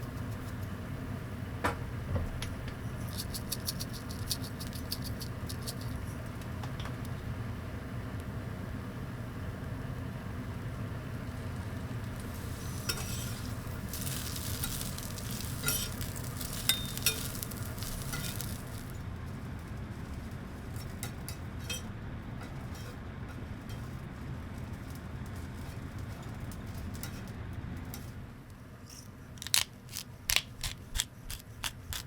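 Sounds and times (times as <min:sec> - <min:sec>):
steady low hum: 0:00.0 - 0:32.0
food sizzling on grill: 0:07.0 - 0:19.0.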